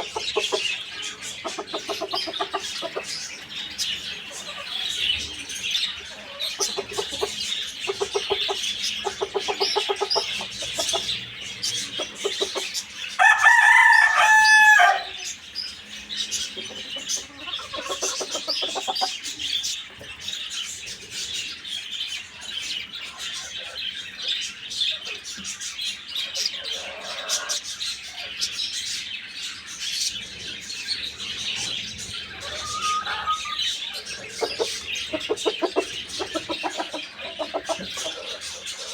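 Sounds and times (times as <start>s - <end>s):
high chirping: 0.0s - 13.4s, 30.1s - 38.9s
chickens clucking: 0.0s - 38.9s
rooster crowing: 13.2s - 15.3s.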